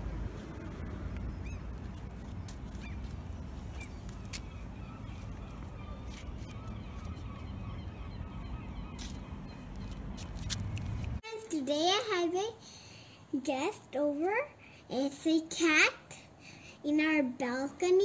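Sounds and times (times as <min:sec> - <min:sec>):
steady low rumble: 0:00.0 - 0:11.2
distant bird calls: 0:00.5 - 0:11.2.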